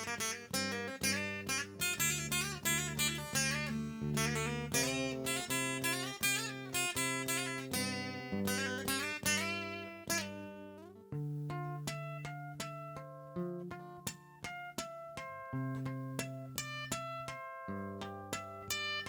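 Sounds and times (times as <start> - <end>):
acoustic guitar strumming chords: 0.0 - 12.8.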